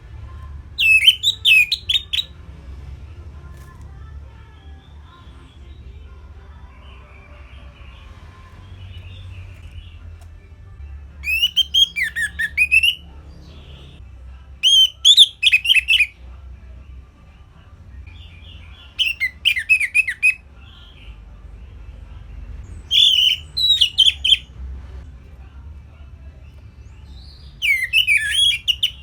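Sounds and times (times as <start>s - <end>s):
thrush whistled song: 0.8s - 2.3s, 11.2s - 13.0s, 14.6s - 16.2s, 18.3s - 20.4s, 22.8s - 24.5s, 27.2s - 29.0s.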